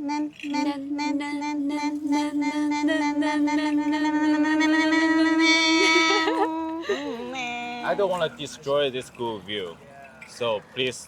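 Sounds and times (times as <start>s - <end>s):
person singing nasal trill: 0.0s - 7.9s.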